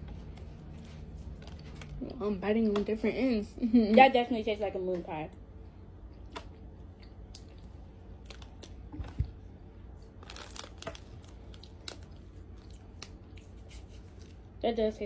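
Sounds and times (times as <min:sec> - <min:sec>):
chewing: 0:06.1 - 0:09.4, 0:10.0 - 0:14.4
light crinkles: 0:07.3 - 0:14.5.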